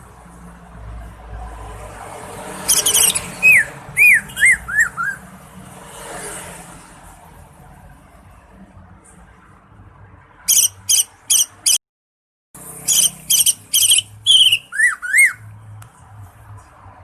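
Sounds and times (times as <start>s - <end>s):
bird singing sharp whistled notes: 12.9s - 15.4s.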